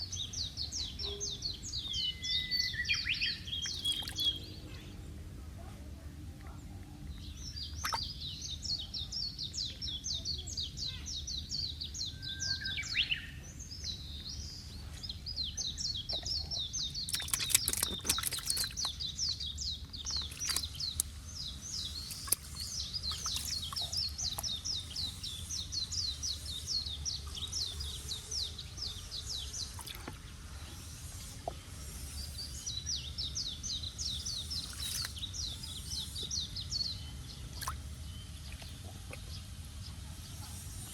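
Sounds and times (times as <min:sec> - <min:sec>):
birds chirping: 0:00.0 - 0:05.0, 0:06.5 - 0:40.9
steady low hum: 0:13.4 - 0:40.9.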